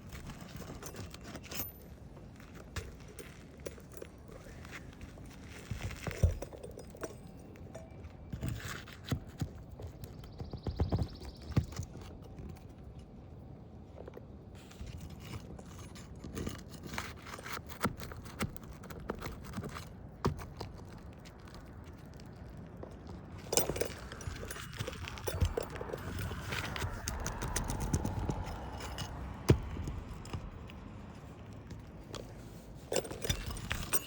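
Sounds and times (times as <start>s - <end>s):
hand tools scraping shingles: 32.2s - 34.0s.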